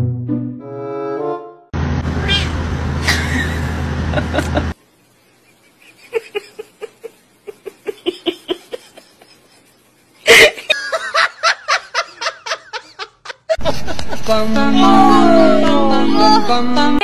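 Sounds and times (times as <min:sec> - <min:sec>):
person laughing: 0:03.0 - 0:04.8, 0:05.5 - 0:16.4
loud cry: 0:14.6 - 0:16.6.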